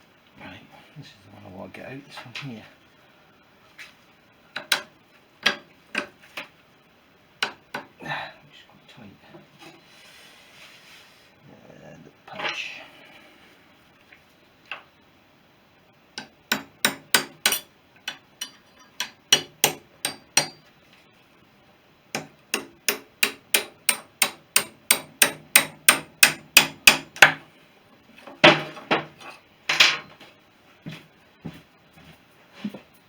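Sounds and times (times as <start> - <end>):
hammer striking steel punch: 16.2 - 20.6, 22.2 - 27.4.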